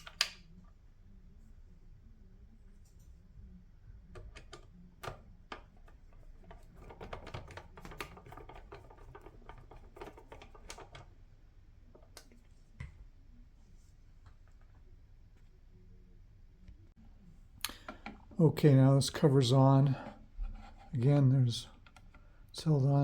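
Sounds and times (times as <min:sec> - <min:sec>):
hard plastic parts clicking: 0:04.2 - 0:11.1.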